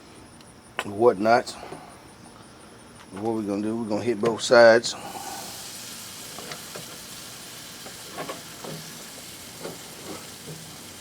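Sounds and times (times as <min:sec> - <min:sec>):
ribs sizzling on a grill: 0:04.7 - 0:11.0.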